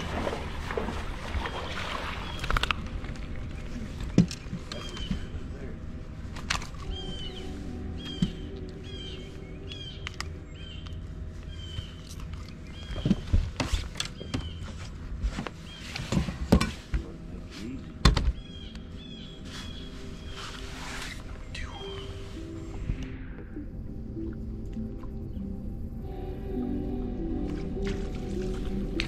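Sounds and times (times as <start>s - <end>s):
bird chirping: 6.8s - 13.4s, 21.4s - 23.6s.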